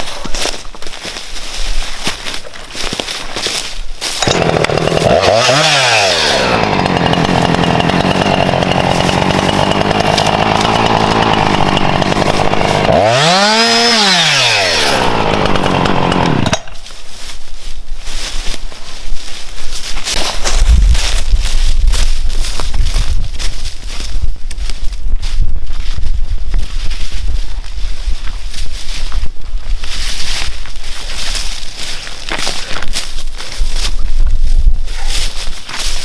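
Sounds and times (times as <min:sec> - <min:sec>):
chainsaw running at high revs: 0:04.2 - 0:16.8.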